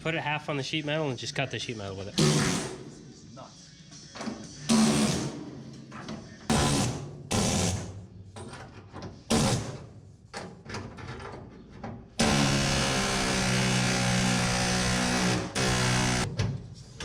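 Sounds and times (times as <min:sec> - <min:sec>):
low machine drone: 0:12.2 - 0:16.3
metal cutting tool bursts: 0:12.2 - 0:16.3.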